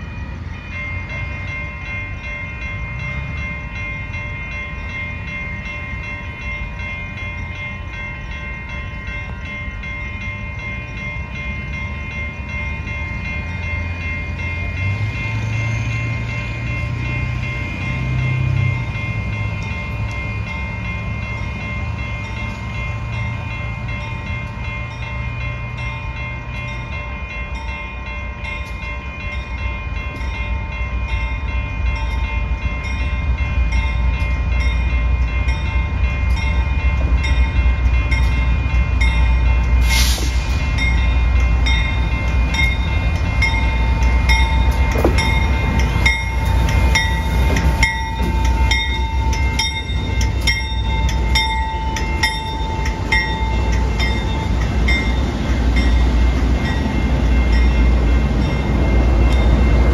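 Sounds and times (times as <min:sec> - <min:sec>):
steady ringing tones: 0:00.0 - 0:59.9
train rumble: 0:00.0 - 0:59.9
brief hiss: 0:39.8 - 0:40.6.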